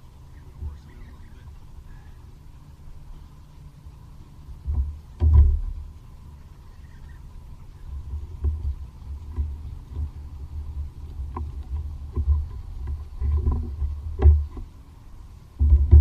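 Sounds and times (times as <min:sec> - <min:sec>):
sharp clicks and knocks: 0:04.6 - 0:05.8, 0:11.3 - 0:14.7, 0:15.6 - 0:16.0
thumps on kayak hull: 0:04.6 - 0:05.8, 0:11.3 - 0:14.7, 0:15.6 - 0:16.0.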